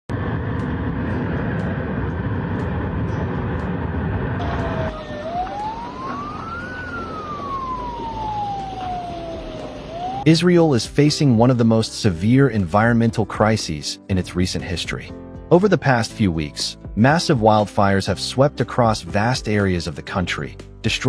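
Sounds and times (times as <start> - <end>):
loud rushing noise: 0.1 - 10.2
emergency vehicle siren wailing: 0.1 - 10.3.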